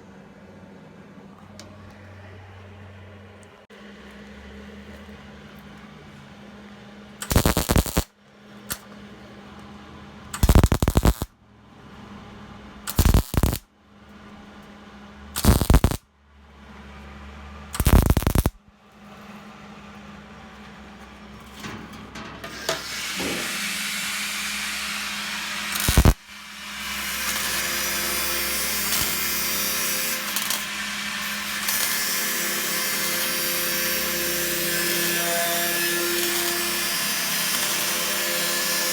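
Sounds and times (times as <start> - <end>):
harsh continuous welding noise: 7.1 - 9.6, 10.3 - 11.3, 12.8 - 14.7, 15.3 - 16.0, 17.7 - 38.9
short weld bursts: 7.2 - 8.1, 10.4 - 11.3, 12.9 - 13.6, 15.4 - 16.0, 17.8 - 18.6, 22.5 - 35.1, 35.8 - 38.9
sharp crack: 12.9 - 13.6, 15.4 - 16.0, 17.8 - 18.6, 25.6 - 26.2.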